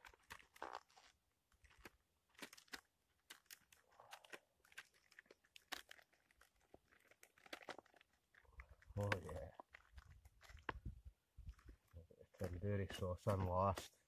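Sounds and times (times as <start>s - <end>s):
crunchy vegetable cutting: 0.0s - 10.8s.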